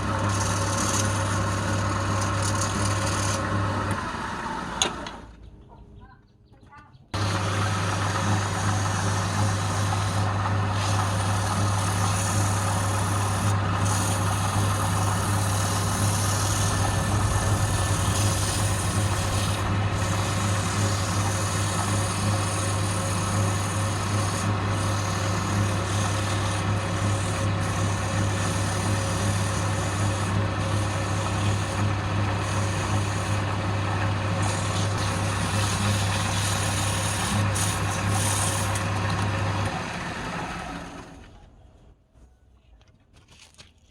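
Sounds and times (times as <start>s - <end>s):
turning tool scraping wood: 0.0s - 3.5s, 8.5s - 33.5s, 34.4s - 39.3s
wood lathe motor hum: 0.0s - 4.9s, 7.2s - 41.2s.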